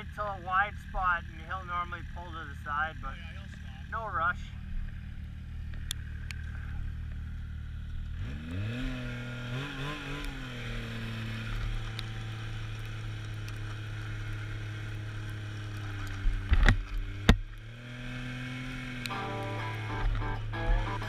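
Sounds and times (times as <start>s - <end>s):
snowmobile engine: 0.0s - 21.0s.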